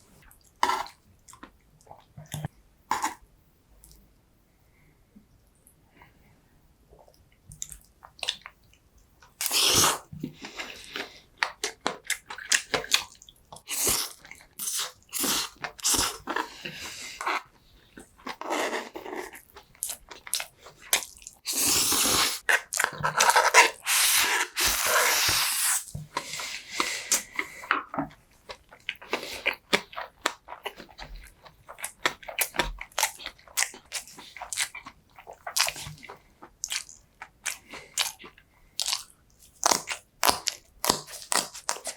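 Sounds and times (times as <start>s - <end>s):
chewing and mouth smacks: 7.0s - 9.4s, 26.2s - 41.9s.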